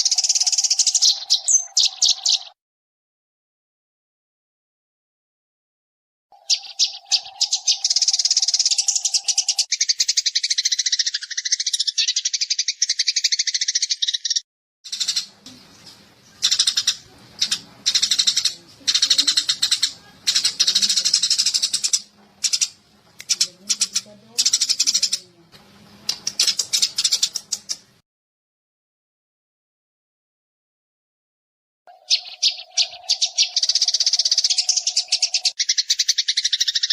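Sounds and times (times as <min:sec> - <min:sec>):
sparrows chirping: 0:00.0 - 0:02.6, 0:06.3 - 0:28.0, 0:31.9 - 0:36.9
faint low hum: 0:15.0 - 0:28.0.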